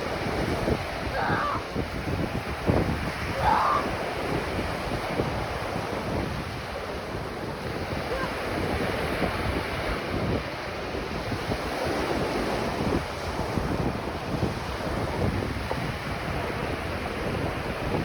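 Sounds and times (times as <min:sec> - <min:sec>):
ocean surf washing: 0:00.0 - 0:18.0
wind buffeting microphone: 0:00.0 - 0:18.0.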